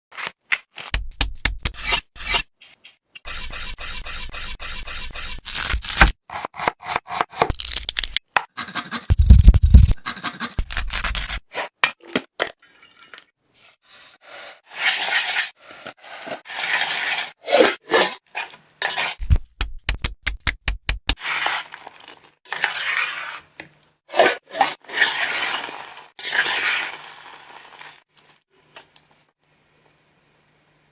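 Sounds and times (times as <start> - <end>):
utensils scraping and clinking: 14.7 - 19.2.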